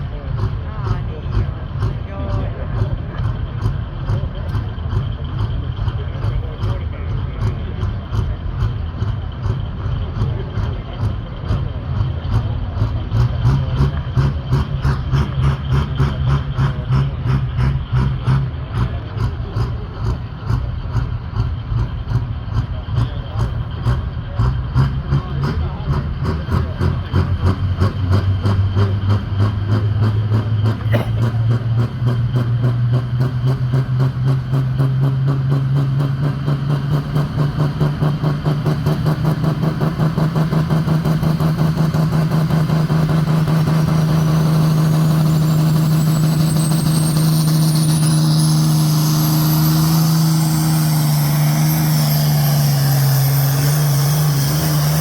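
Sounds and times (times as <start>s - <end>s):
tractor engine under load: 0.0s - 55.0s
high whistle: 45.2s - 54.8s.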